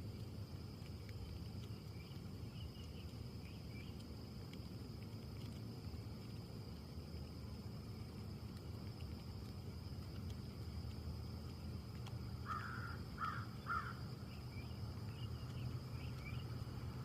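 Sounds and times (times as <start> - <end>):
low outdoor background rumble: 0.0 - 17.0
faint bird chirps: 1.8 - 4.0, 12.4 - 16.6
crow cawing: 12.4 - 14.0.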